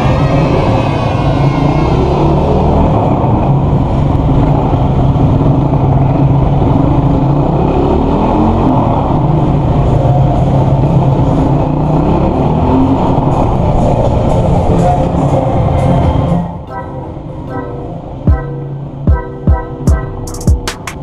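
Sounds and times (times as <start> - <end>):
motorcycle engine revving: 1.6 - 15.5.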